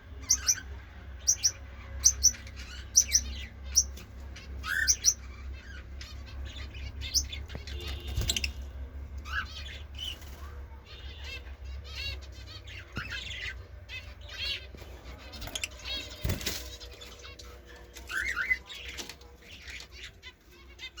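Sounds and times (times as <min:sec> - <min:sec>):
lovebird chirping: 0:00.2 - 0:08.6.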